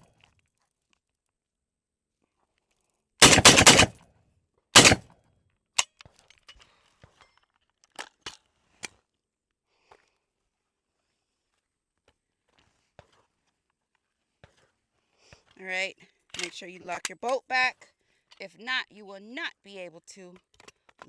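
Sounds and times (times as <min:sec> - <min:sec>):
shotgun shots: 0:03.2 - 0:04.0, 0:04.8 - 0:05.0.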